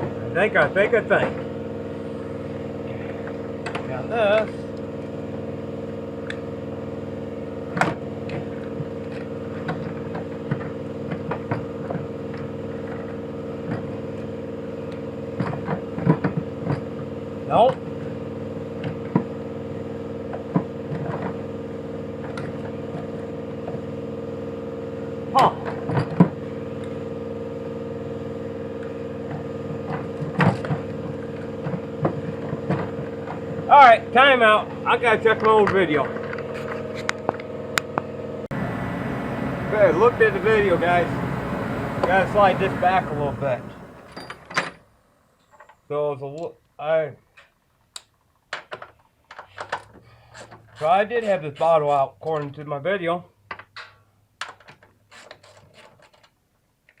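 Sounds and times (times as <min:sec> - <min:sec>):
low mechanical hum: 0:38.5 - 0:44.5.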